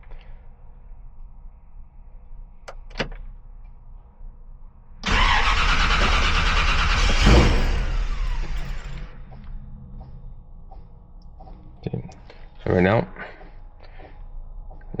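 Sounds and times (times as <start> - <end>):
car engine cranking and running: 5.0 - 9.6.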